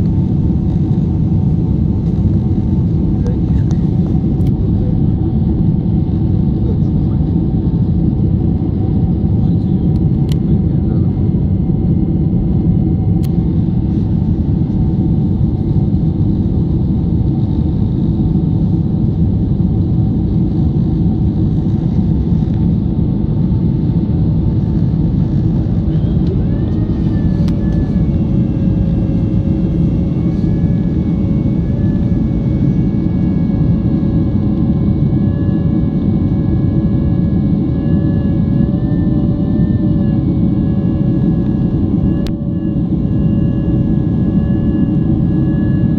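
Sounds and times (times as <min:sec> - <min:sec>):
airliner engines and rushing air: 0:00.0 - 0:45.9
faint whining engine tones: 0:00.0 - 0:45.9.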